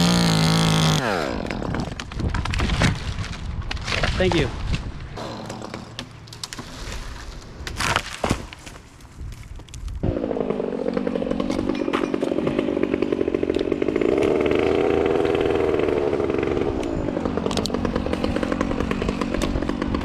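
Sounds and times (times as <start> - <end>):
chainsaw running: 0.0 - 2.1, 10.0 - 20.0.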